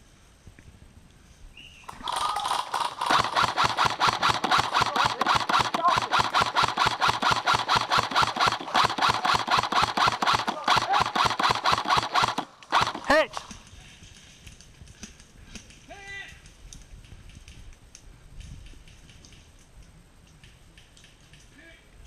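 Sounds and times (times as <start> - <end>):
fast mechanical pulsing: 1.9 - 13.2.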